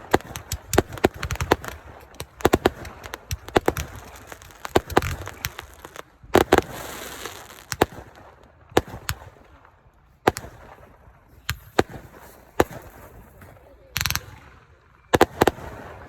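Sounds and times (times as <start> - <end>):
fireworks bangs and crackle: 0.0 - 16.0.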